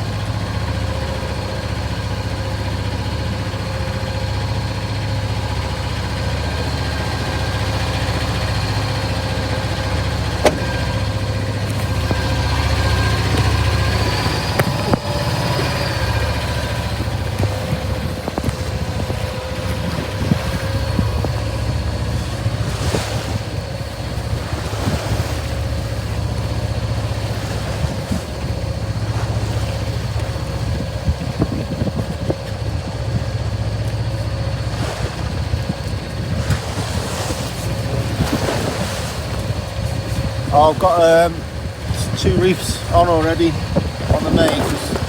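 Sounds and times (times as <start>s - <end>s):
low rumble and hum: 0.0s - 45.0s
rushes of water: 0.0s - 45.0s
waves: 0.0s - 45.0s
wind: 0.0s - 45.0s.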